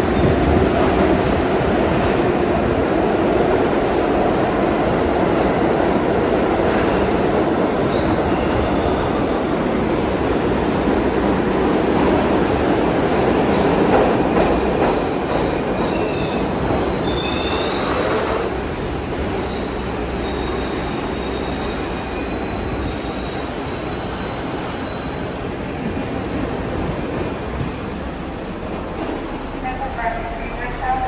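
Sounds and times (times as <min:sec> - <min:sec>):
subway train rumbling on rails: 0:00.0 - 0:31.0
high wheel squeals: 0:15.9 - 0:18.6, 0:19.3 - 0:25.2.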